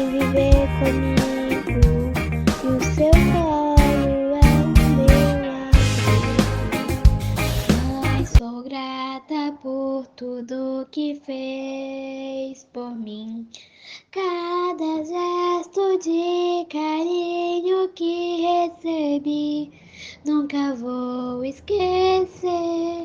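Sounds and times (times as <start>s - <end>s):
child singing unaccompanied: 0.0s - 5.8s, 7.8s - 23.0s
full band music: 0.0s - 8.4s.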